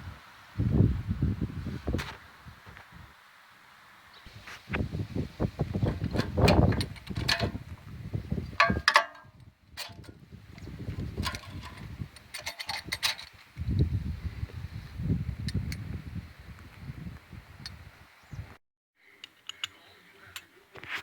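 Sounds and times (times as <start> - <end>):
hand tools clicking and knocking: 5.9 - 7.6, 8.5 - 10.1, 11.2 - 13.5.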